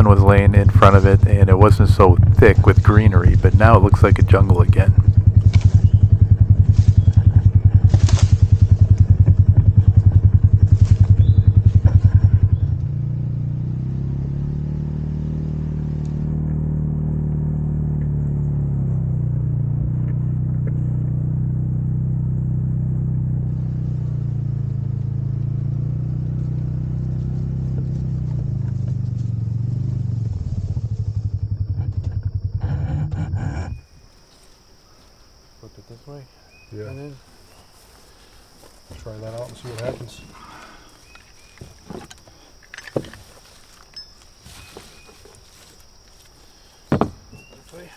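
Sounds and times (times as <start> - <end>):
utility vehicle engine running: 0.0 - 47.9
knocks and clatters: 41.1 - 45.6, 46.8 - 47.9.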